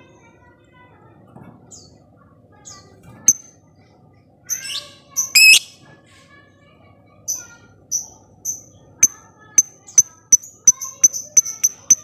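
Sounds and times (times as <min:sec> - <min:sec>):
faint bird tones: 0:04.5 - 0:05.8
lovebird shrill chirps: 0:04.6 - 0:05.7.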